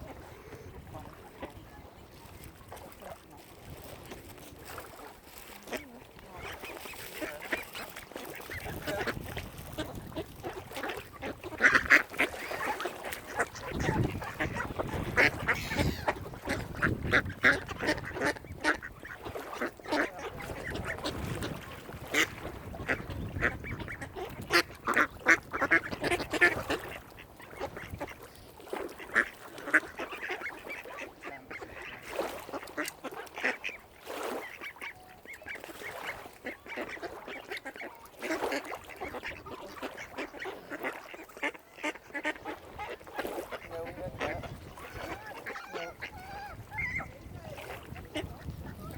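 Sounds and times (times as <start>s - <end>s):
waterfowl calling: 4.8s - 48.9s.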